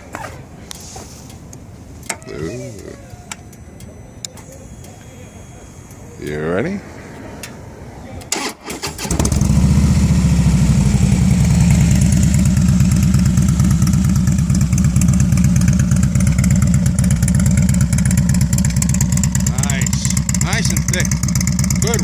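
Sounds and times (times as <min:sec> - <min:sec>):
motorcycle engine idling: 0:09.2 - 0:22.0.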